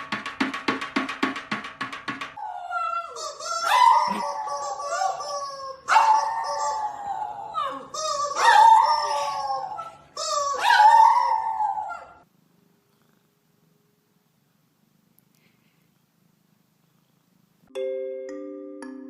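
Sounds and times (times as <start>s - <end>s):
dog howling: 2.4s - 12.2s.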